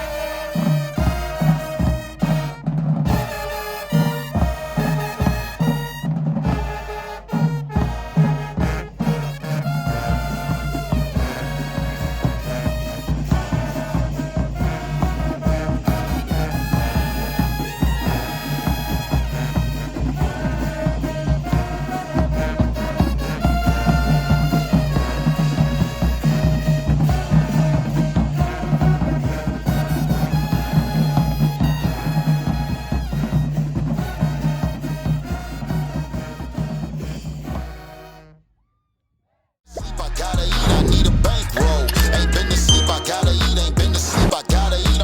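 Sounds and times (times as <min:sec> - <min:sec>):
drumline: 0:00.0 - 0:38.3, 0:39.7 - 0:45.0
trumpets and trombones chords: 0:00.0 - 0:38.5, 0:39.7 - 0:45.0
percussion hits: 0:39.7 - 0:45.0.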